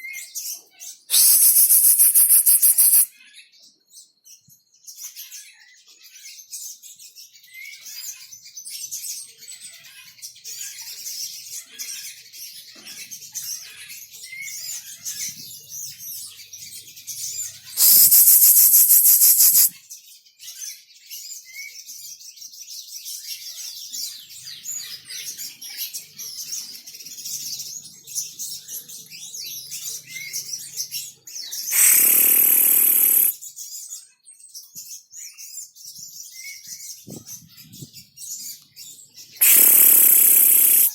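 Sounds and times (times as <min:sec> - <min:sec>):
sunbirds twittering: 0:01.1 - 0:03.1, 0:17.3 - 0:19.7, 0:31.4 - 0:33.4, 0:39.2 - 0:40.9
loud bursts of noise: 0:17.8 - 0:19.7, 0:31.7 - 0:33.3, 0:39.4 - 0:40.9.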